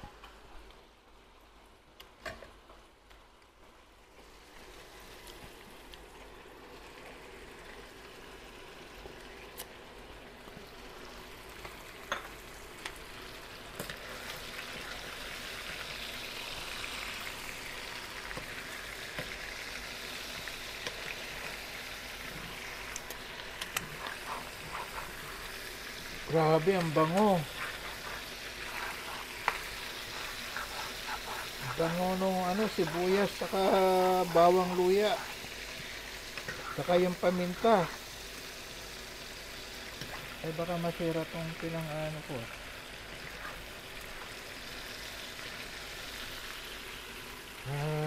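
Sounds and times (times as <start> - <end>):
chicken sizzling in a frying pan: 2.3 - 48.0
spatula turning food in pan: 8.9 - 41.9, 42.5 - 47.2.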